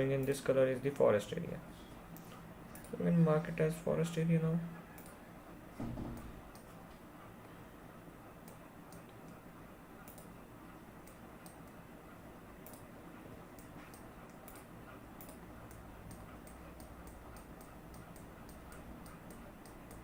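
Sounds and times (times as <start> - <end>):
faint background hum: 0.0 - 20.0
computer mouse clicking: 2.1 - 3.0, 5.0 - 5.2, 6.1 - 7.0, 8.4 - 9.4, 10.0 - 10.4, 11.0 - 11.8, 12.6 - 20.0.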